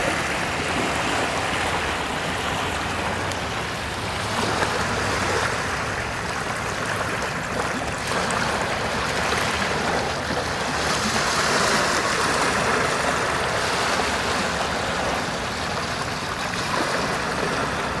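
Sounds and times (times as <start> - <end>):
sea waves washing: 0.0 - 18.0.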